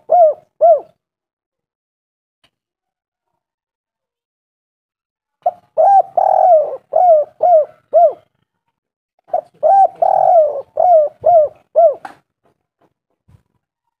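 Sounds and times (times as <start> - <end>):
dove cooing: 0.0 - 1.0, 5.4 - 8.3, 9.3 - 12.2.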